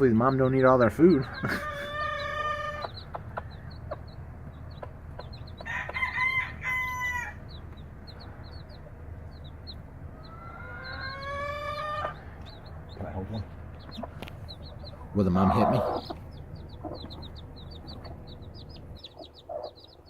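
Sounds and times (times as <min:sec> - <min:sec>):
chicks peeping: 0:00.0 - 0:20.0
rooster crowing: 0:05.6 - 0:07.4, 0:10.2 - 0:12.2.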